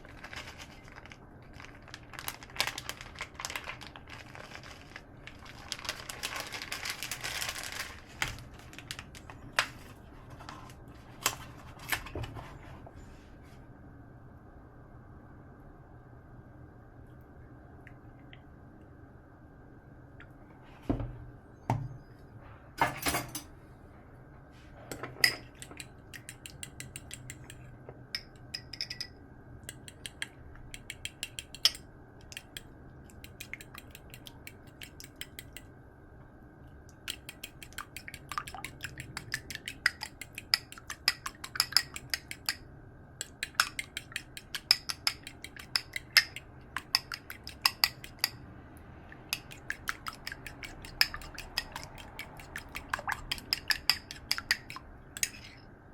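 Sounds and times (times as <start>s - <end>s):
utensil clinking against bowl: 28.2s - 29.2s, 43.2s - 48.4s, 49.4s - 55.5s.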